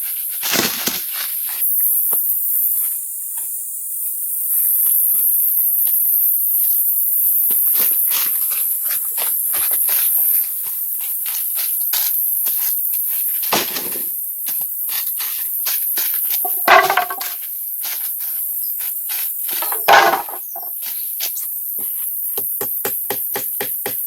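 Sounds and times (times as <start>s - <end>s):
high-pitched hiss: 0.0s - 24.0s
sharp knocks and taps: 22.4s - 24.0s.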